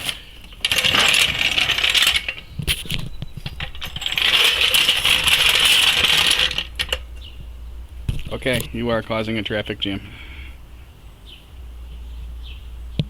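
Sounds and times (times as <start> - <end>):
metal parts rattling and clinking: 0.0 - 7.3.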